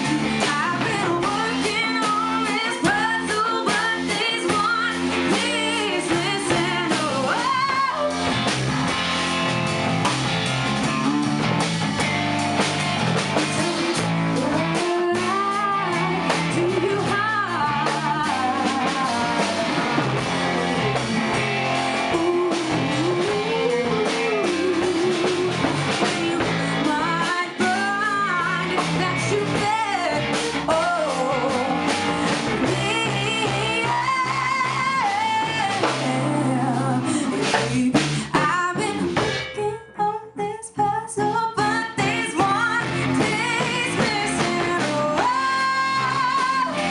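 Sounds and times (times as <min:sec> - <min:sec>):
person singing: 0:00.0 - 0:08.3, 0:13.4 - 0:46.9
band playing a song: 0:00.0 - 0:40.0, 0:41.6 - 0:46.9.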